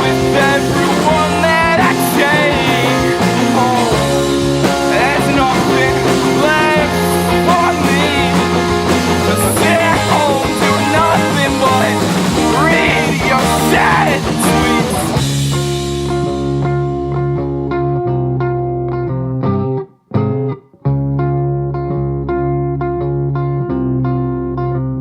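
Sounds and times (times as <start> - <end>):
punk rock band playing: 0.0 - 19.1.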